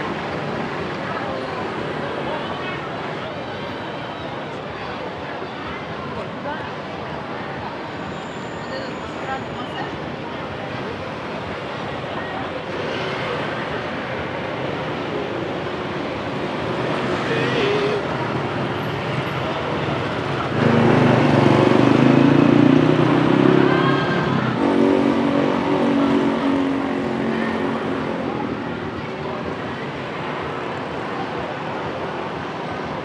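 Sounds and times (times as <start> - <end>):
street traffic: 0.0 - 33.0
vehicle engine passing close: 20.4 - 27.2.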